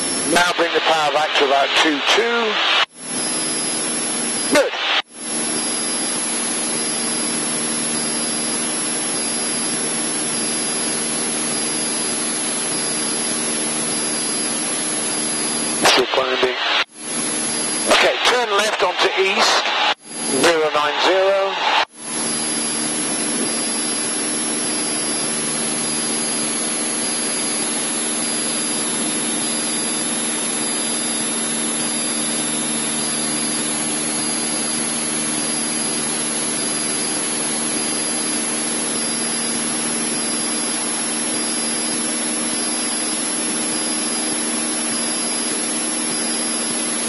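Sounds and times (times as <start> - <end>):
propeller engine droning: 0.0 - 47.0.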